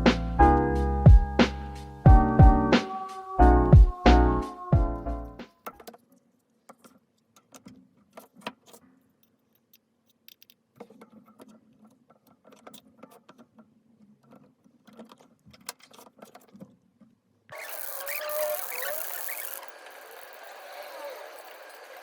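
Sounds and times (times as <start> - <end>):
plastic parts clicking: 5.6 - 16.9.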